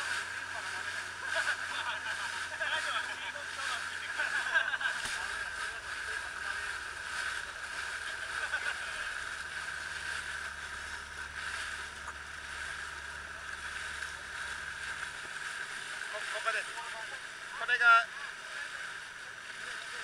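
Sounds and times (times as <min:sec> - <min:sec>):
boat engine humming: 0:00.0 - 0:20.0.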